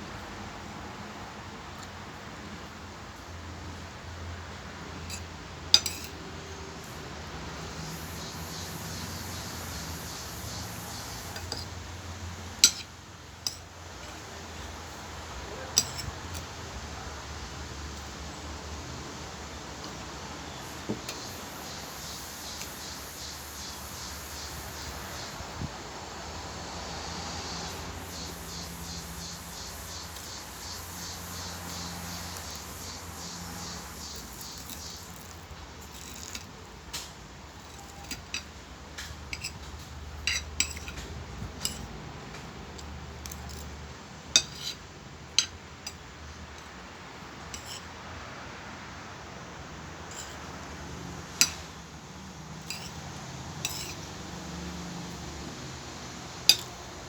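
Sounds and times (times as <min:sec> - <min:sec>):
steady background hiss: 0:00.0 - 0:57.0
cutlery clinking on a plate: 0:05.0 - 0:06.2, 0:12.6 - 0:14.2, 0:15.6 - 0:16.5, 0:35.9 - 0:41.9, 0:44.4 - 0:44.8, 0:47.6 - 0:47.8, 0:51.4 - 0:51.6, 0:52.6 - 0:53.0, 0:53.6 - 0:54.0, 0:56.5 - 0:56.8.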